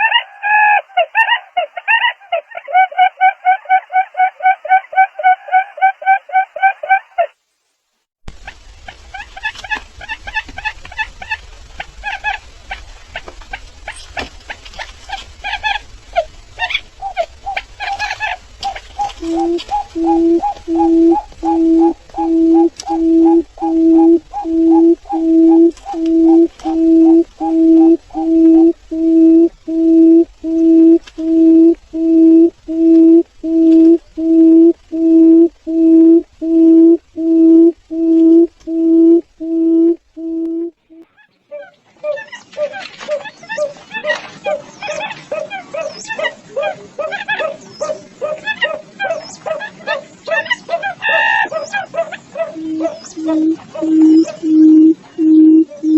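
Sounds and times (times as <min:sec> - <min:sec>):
low rumble: 0:08.3 - 0:40.8
bird calling rapidly: 0:08.4 - 0:55.9.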